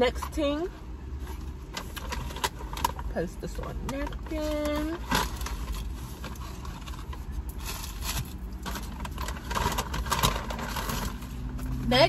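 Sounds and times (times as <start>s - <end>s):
paper packaging rustling: 3.8s - 11.8s.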